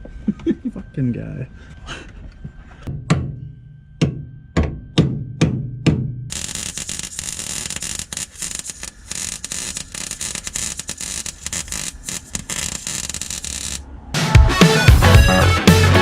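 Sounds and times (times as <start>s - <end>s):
music: 0.0s - 6.3s, 14.2s - 16.0s
welding arc crackling: 6.3s - 13.9s.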